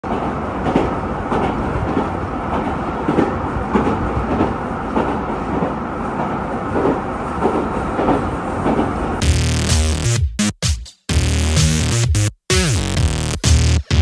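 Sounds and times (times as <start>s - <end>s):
wheels clacking over rail joints: 0.0s - 9.2s
railcar rumble: 0.0s - 9.3s.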